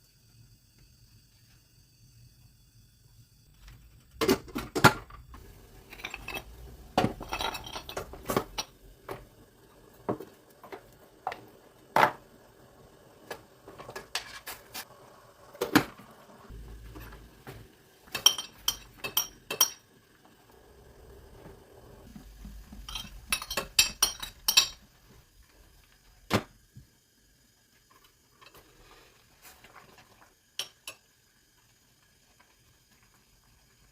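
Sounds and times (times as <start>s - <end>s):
dishes and pots knocking: 5.9s - 9.2s, 18.1s - 19.8s, 22.6s - 24.8s.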